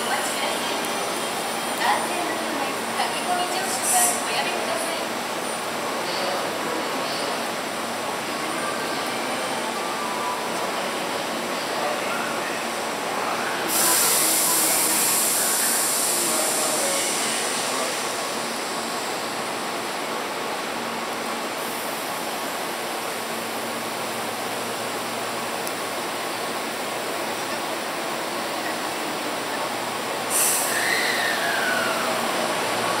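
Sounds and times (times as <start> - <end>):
loud high hiss: 13.6 - 19.5, 30.0 - 33.0.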